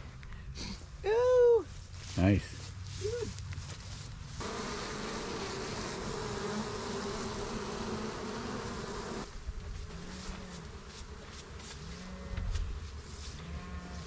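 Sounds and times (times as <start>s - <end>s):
single bees flying past: 4.4s - 14.0s
swarm of bees buzzing: 4.4s - 14.0s.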